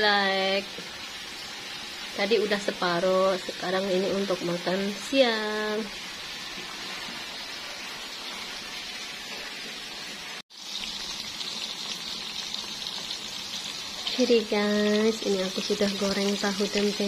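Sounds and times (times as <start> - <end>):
food deep-frying in oil: 0.0 - 17.0
food sizzling in a wok: 0.0 - 17.0.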